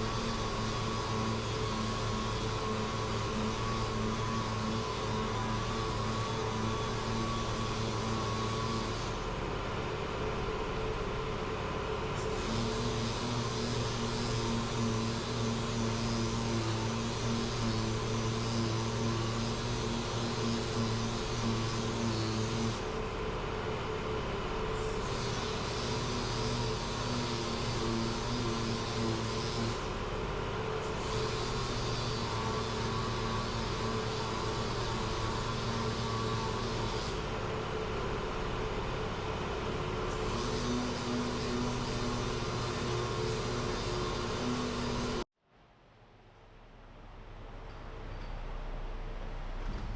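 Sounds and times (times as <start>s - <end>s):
sander on plastic: 0.0s - 9.2s, 12.2s - 22.9s, 24.9s - 30.0s, 30.8s - 37.5s, 40.0s - 45.3s.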